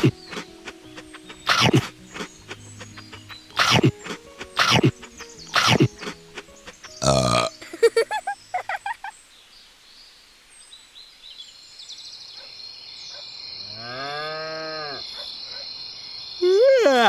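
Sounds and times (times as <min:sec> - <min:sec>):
cow mooing: 0:13.7 - 0:15.0.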